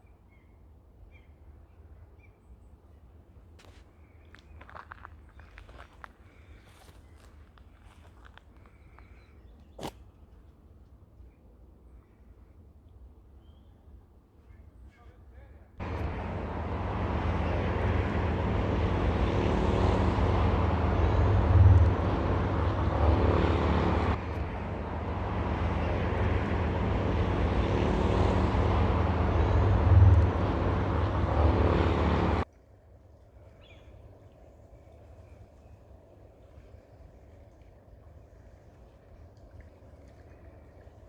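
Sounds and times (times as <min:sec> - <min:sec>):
rushing noise: 0:15.8 - 0:32.4
engine-like hum: 0:15.8 - 0:32.5.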